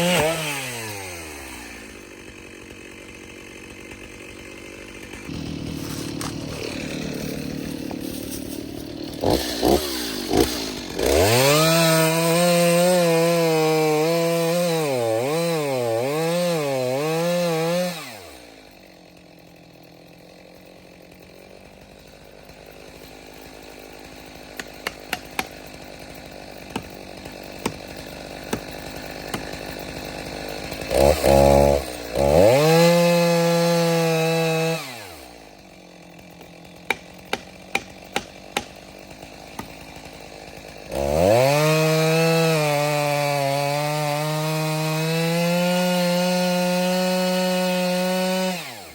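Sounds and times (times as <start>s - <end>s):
chainsaw revving and idling: 0.0s - 48.9s.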